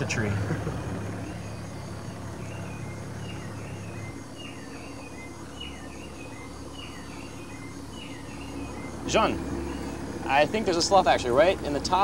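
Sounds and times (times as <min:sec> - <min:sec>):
insect drone: 0:00.0 - 0:12.0
low hum: 0:00.0 - 0:12.0
bird whistling: 0:02.4 - 0:10.1.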